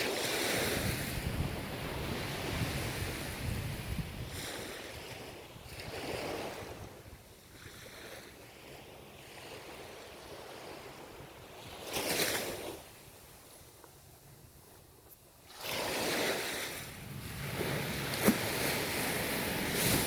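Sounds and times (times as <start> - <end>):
ocean waves breaking: 0.0 - 20.0.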